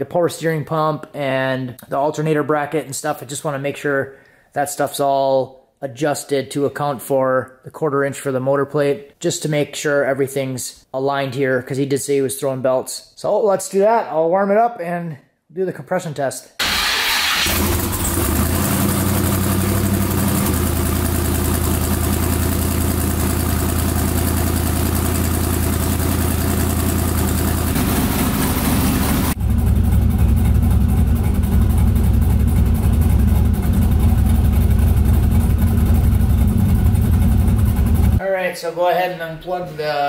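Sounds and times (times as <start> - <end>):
car engine idling with misfires: 16.6 - 38.2.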